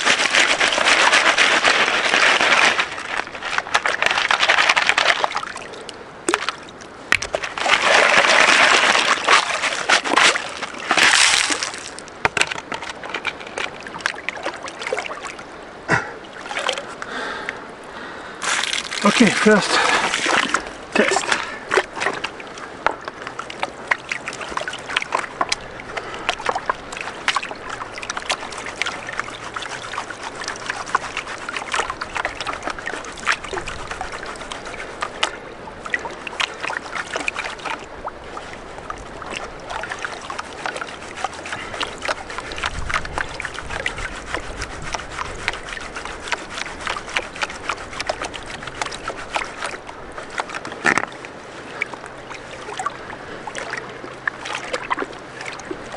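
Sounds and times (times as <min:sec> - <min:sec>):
gravel rattling in running water: 0:00.0 - 0:17.5, 0:18.4 - 0:55.9.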